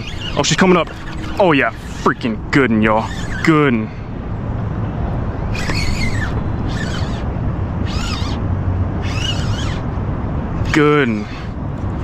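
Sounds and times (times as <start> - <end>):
squeaky animal calls: 0.0 - 2.4, 3.0 - 3.5, 5.5 - 8.4, 9.0 - 9.9.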